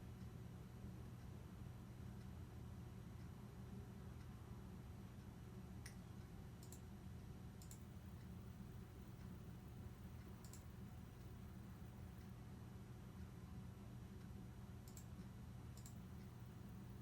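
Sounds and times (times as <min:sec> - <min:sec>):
steady low hum: 0:00.0 - 0:12.4, 0:15.7 - 0:17.0
faint sharp clicks: 0:06.6 - 0:06.8, 0:07.6 - 0:08.3, 0:10.2 - 0:12.3, 0:14.8 - 0:15.2, 0:15.8 - 0:16.4.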